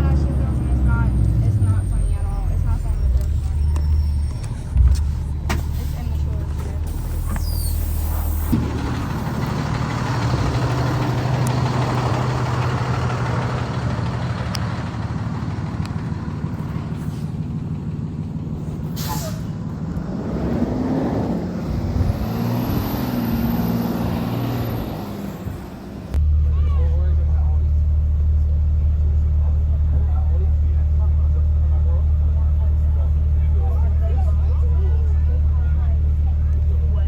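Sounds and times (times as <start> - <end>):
bus engine hum: 0.0 - 37.0
road noise: 0.0 - 37.0
air brakes hiss: 18.9 - 19.5.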